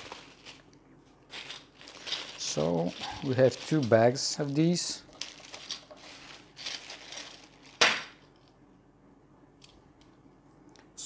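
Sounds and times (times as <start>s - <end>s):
plastic bags crinkling: 0.0s - 8.5s.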